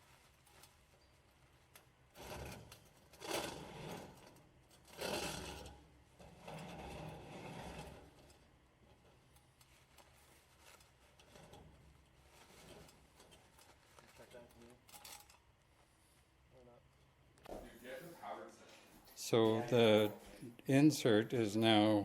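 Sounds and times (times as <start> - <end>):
pipe scraping inside chimney: 2.1 - 8.4.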